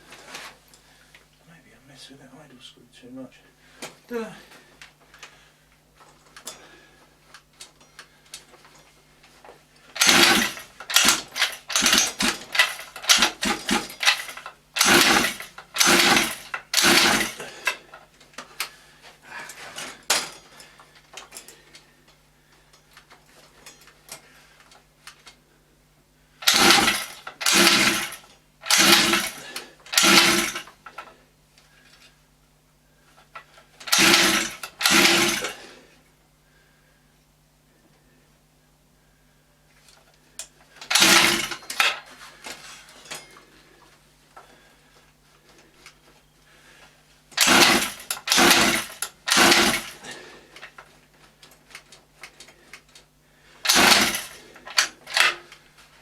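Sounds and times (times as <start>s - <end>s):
recoil starter pulls cranking engine: 10.0s - 18.0s, 26.4s - 30.8s, 33.8s - 35.6s, 40.8s - 42.1s, 47.4s - 50.1s, 53.6s - 55.5s.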